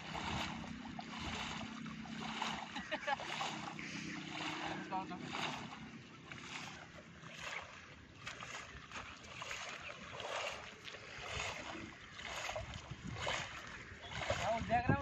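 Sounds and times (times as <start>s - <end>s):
rushing floodwater: 0.0s - 15.0s.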